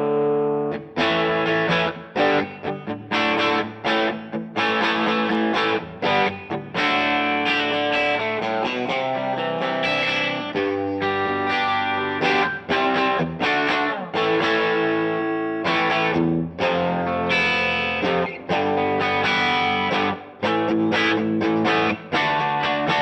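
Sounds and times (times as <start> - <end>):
electric guitar chords: 0.0 - 23.0.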